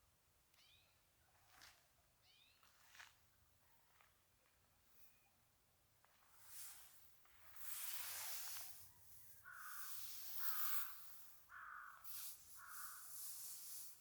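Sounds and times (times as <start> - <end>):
faint rustling hiss: 6.2 - 14.0
crow cawing: 9.4 - 13.2.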